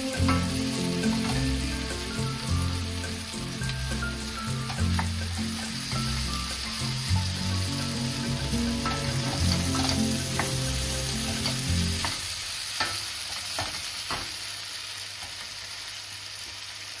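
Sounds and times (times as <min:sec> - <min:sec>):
background music: 0:00.0 - 0:12.3
vegetables sizzling in a pan: 0:00.0 - 0:17.0
wooden spatula knocking on pan: 0:04.6 - 0:05.9, 0:08.2 - 0:12.2.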